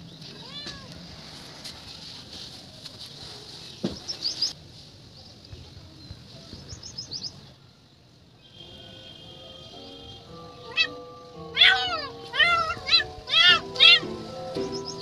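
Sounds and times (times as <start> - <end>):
steady outdoor hiss: 0.0 - 15.0
small birds chirping: 3.4 - 7.6, 11.6 - 15.0
soft music with held notes: 9.3 - 15.0.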